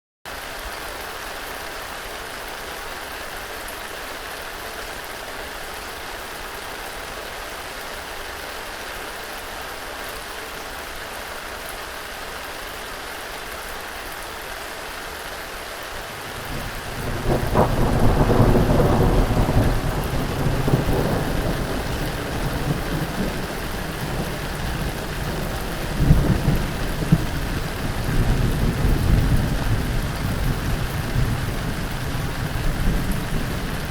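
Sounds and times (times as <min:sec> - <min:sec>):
rain hissing: 0:10.8 - 0:33.9
thunder rumbling: 0:16.2 - 0:33.9
sharp thunder crack: 0:17.0 - 0:23.2.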